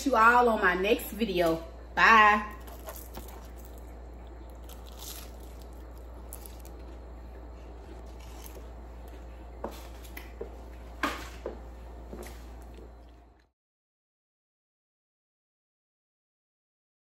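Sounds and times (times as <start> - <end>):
steady low hum: 0.0 - 13.5
person chewing shrimp: 2.6 - 10.4.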